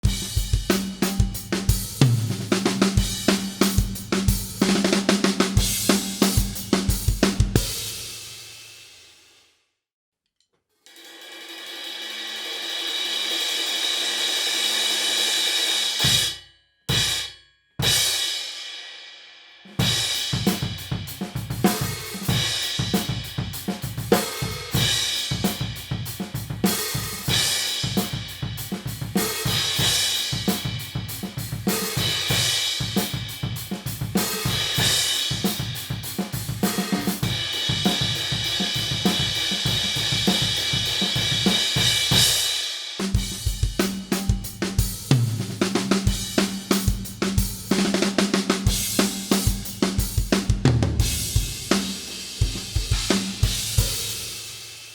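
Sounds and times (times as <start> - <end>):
drum kit groove: 0.0 - 9.4, 11.6 - 18.8, 19.7 - 54.9
crash cymbal struck and choked: 10.9 - 19.2, 51.0 - 54.9.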